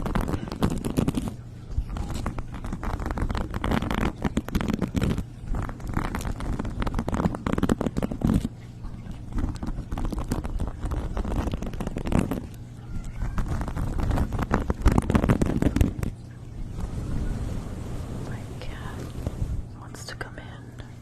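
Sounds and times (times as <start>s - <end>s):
scratching and crackling: 0.0s - 20.6s
low hum: 13.6s - 21.0s.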